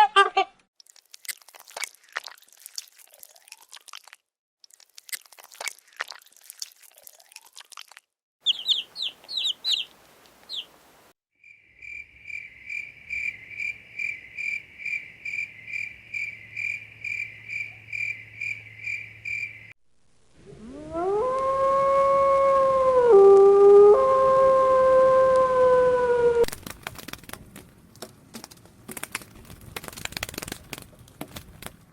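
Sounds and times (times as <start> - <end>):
high-pitched animal calls: 8.4 - 9.9
high chirps: 8.4 - 10.7
dog howling: 20.5 - 26.5
crunching clicks: 26.5 - 31.9.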